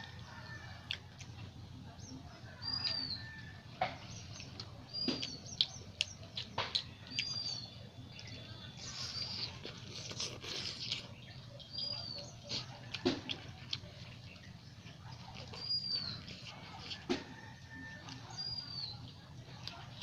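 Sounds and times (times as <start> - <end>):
close-up chewing and smacking: 0.0 - 20.0
bird chirping: 4.0 - 9.6.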